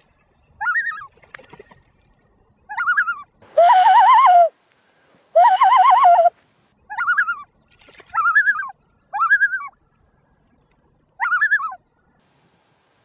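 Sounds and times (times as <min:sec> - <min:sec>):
loon calls through cupped hands: 0:02.8 - 0:04.5, 0:05.3 - 0:06.3.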